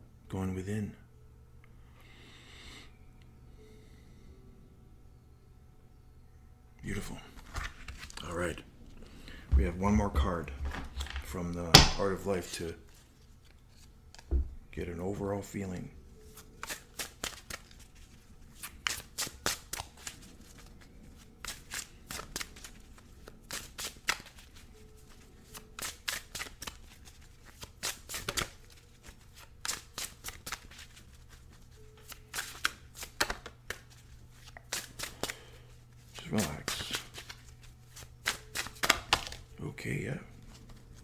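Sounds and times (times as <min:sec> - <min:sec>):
cards being shuffled: 0:06.9 - 0:14.9, 0:15.7 - 0:39.6, 0:40.2 - 0:41.0.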